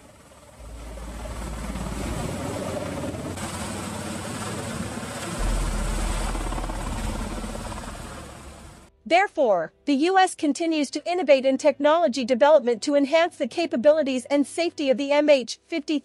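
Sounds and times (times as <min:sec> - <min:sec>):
helicopter rotor and turbine: 0:00.0 - 0:08.9.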